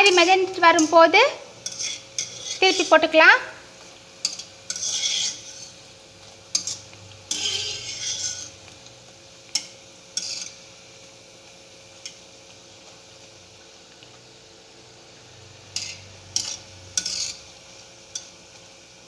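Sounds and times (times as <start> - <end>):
spoon scraping pan: 0.0 - 3.0, 3.8 - 8.8, 9.5 - 10.7, 15.7 - 17.5
oil sizzling: 0.0 - 19.0
metal spoon clinking on pan: 1.6 - 2.7, 4.2 - 5.7, 6.5 - 8.5, 9.5 - 10.6, 15.8 - 17.4.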